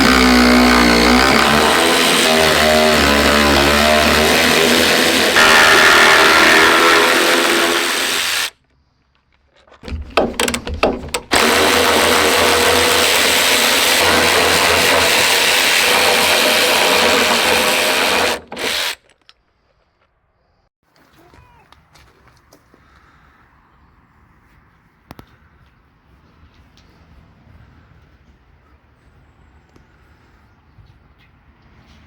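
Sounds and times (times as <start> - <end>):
power tool running: 0.0 - 8.6, 10.2 - 19.0.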